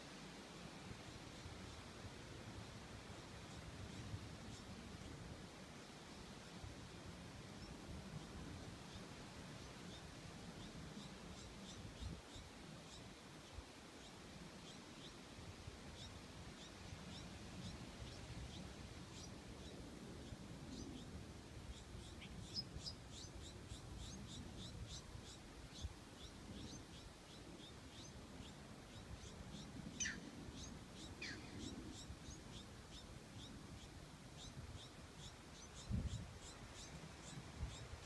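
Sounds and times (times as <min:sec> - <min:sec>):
birds chirping: 0:16.0 - 0:38.0.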